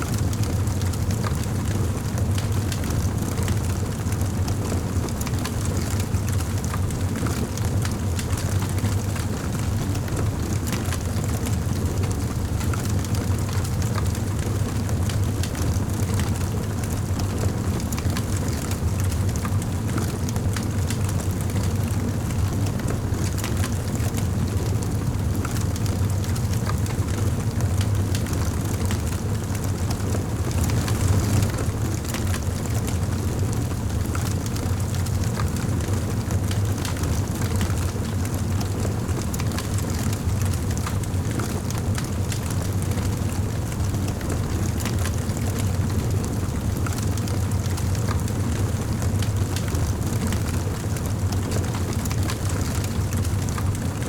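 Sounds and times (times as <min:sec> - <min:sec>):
wood fire crackling: 0:13.4 - 0:54.0.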